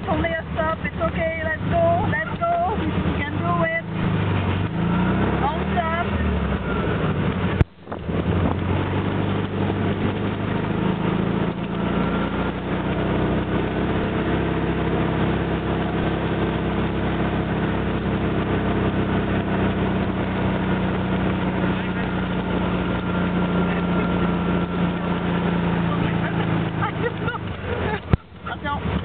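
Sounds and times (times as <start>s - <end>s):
vehicle engine climbing hill: 0.0s - 29.0s.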